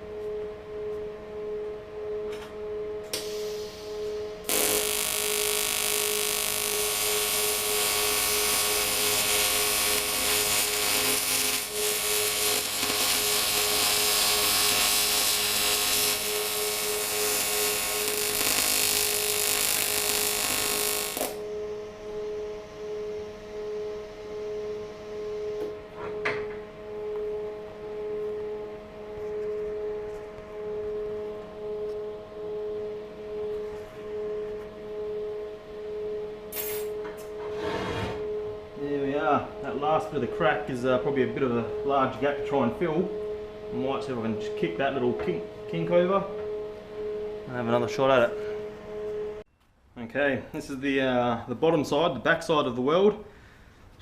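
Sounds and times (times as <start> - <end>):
steady hum: 0.0 - 37.4, 38.2 - 49.5
welding arc buzzing hiss: 3.1 - 21.4, 36.5 - 37.0.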